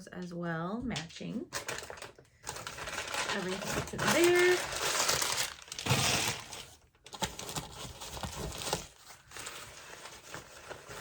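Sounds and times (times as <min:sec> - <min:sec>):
packaging crinkling and rustling: 0:01.5 - 0:11.0.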